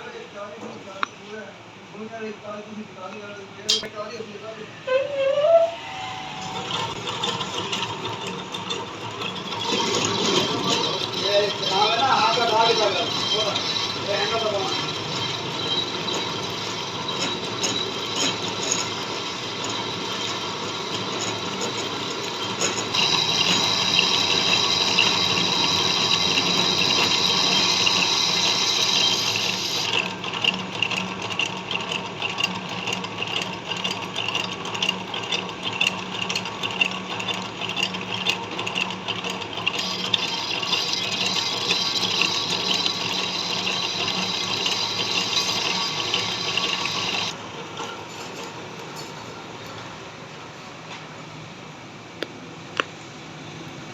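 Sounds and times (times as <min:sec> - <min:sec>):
lathe cutting tool hissing: 0:05.8 - 0:30.0, 0:39.6 - 0:47.4
lathe machine hum: 0:05.8 - 0:48.8.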